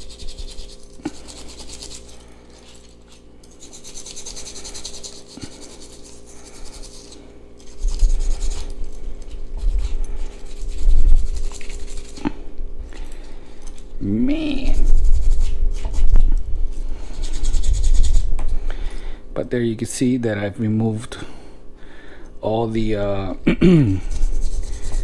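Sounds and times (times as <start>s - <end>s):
wire brush scrubbing metal: 0.0s - 12.4s, 14.5s - 18.3s, 24.1s - 25.0s.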